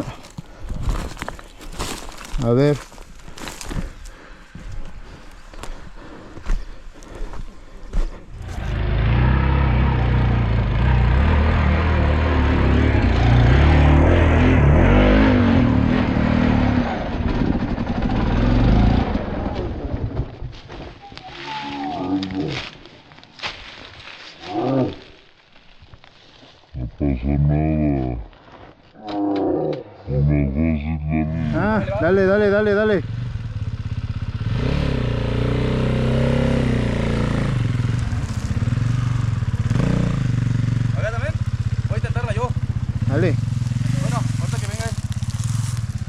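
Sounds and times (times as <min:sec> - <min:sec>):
dirt bike engine revving: 0:08.4 - 0:20.2, 0:30.4 - 0:46.0.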